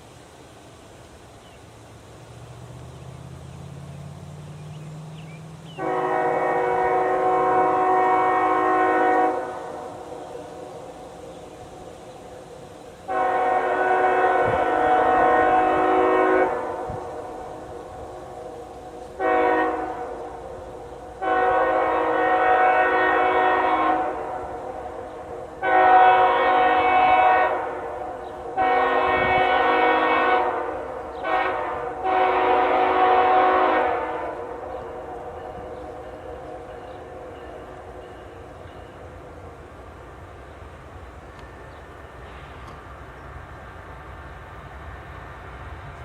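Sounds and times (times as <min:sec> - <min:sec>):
passing train rumble: 0:00.0 - 0:46.0
train horn blasts: 0:05.7 - 0:10.8, 0:13.1 - 0:39.2.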